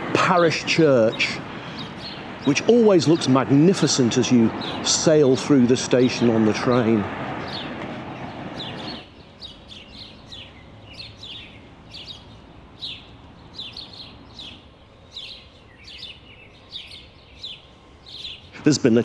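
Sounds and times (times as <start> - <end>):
small birds chirping: 0.0 - 19.0
steady rushing noise: 0.0 - 19.0.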